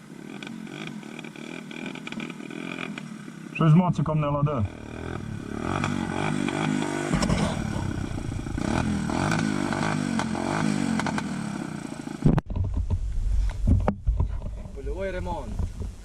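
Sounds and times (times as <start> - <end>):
motorcycle engine revving unevenly: 0.0 - 13.1
low rumble: 4.3 - 10.1, 12.3 - 16.0.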